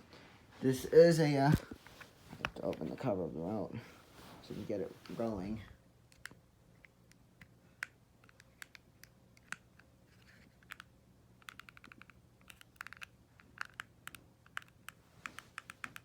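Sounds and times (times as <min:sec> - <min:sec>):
faint low hum: 0:00.0 - 0:16.0
plastic remote clicking: 0:07.4 - 0:16.0.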